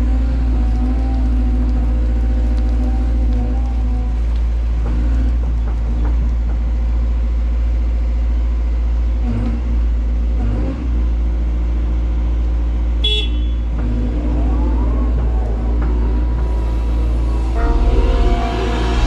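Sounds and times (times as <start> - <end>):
excavator diesel engine running: 0.0 - 19.0
brief sharp high-pitched sound: 17.3 - 19.0.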